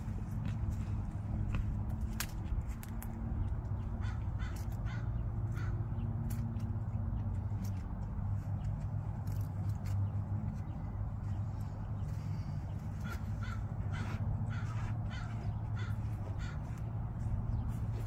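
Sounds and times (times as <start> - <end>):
steady low hum: 0.0 - 18.0
bird calling: 12.1 - 16.9.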